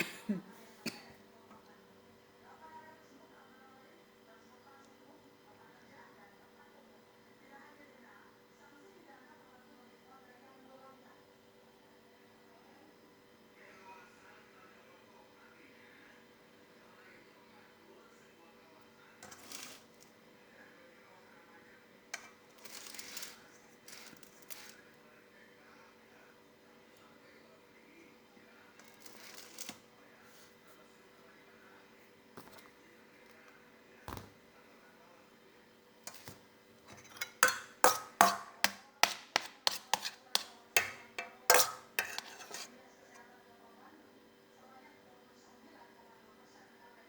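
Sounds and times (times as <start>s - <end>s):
utensil clinking against dish: 36.1s - 42.7s.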